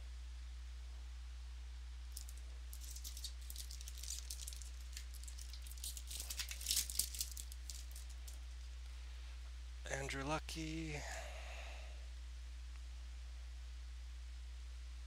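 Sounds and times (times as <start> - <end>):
trading cards crackling and rustling: 2.2 - 8.7.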